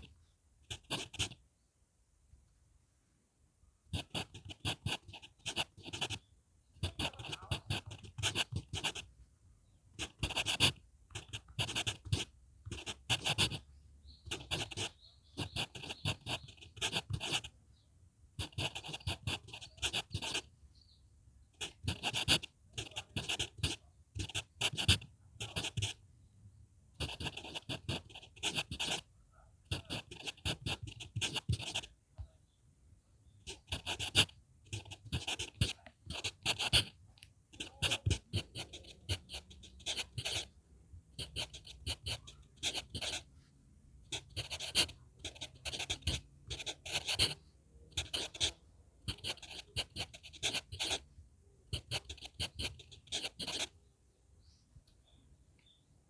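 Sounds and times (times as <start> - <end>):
pencil scratching on paper: 0.7 - 1.4, 4.0 - 6.2, 6.8 - 9.1, 10.0 - 17.5, 18.4 - 20.5, 21.6 - 26.0, 27.0 - 29.1, 29.7 - 31.9, 33.4 - 40.5, 41.2 - 43.4, 44.1 - 51.0, 51.7 - 53.7.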